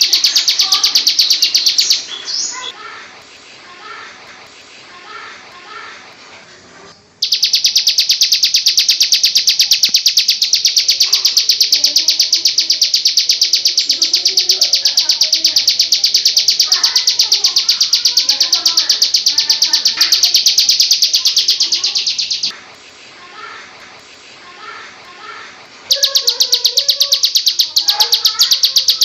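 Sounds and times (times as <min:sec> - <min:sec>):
bird buzzing trill: 0:00.0 - 0:02.7, 0:07.2 - 0:22.5, 0:25.9 - 0:29.0
children's voices murmuring: 0:00.0 - 0:06.8, 0:10.5 - 0:29.0.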